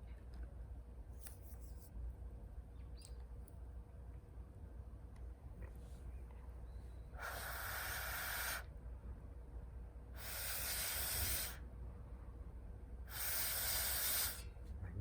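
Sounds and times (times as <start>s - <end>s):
air blown into fire: 10.2s - 11.6s, 13.1s - 14.4s.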